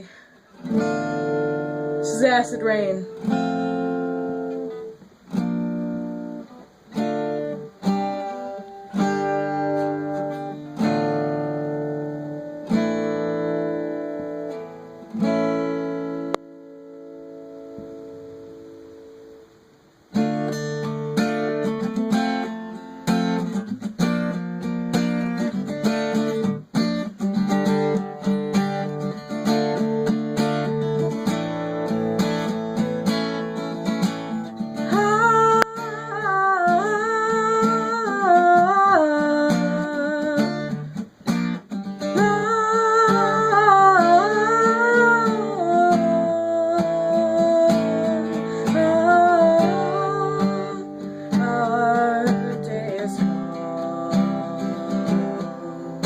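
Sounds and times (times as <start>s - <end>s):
person humming: 0.0s - 0.2s, 34.9s - 40.7s, 42.1s - 56.0s
acoustic guitar picking and strumming: 0.0s - 56.0s.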